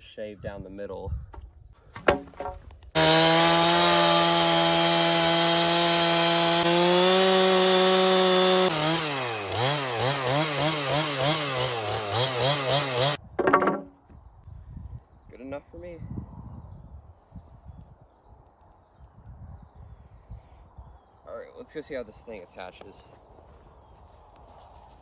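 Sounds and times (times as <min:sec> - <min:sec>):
chainsaw cutting wood: 0:01.4 - 0:14.0.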